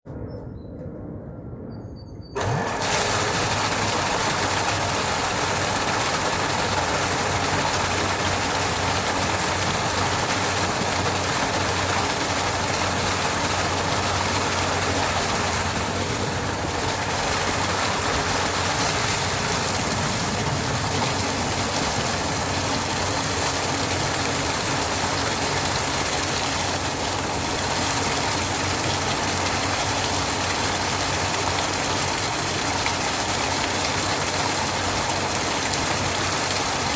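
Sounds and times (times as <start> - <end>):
electric motor humming: 2.4 - 25.1
pumped water rushing: 2.4 - 36.9.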